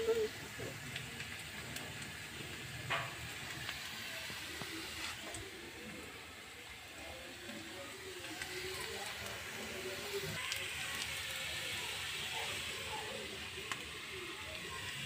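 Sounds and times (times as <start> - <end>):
onions frying in oil: 0.0 - 15.0.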